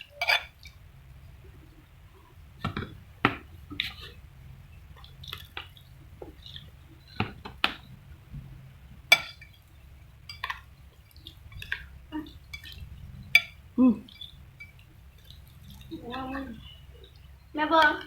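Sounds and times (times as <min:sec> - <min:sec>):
spoon and chopsticks clinking bowl: 0:00.2 - 0:00.6, 0:09.1 - 0:09.5, 0:11.6 - 0:13.6
wet eating sounds: 0:10.3 - 0:18.0.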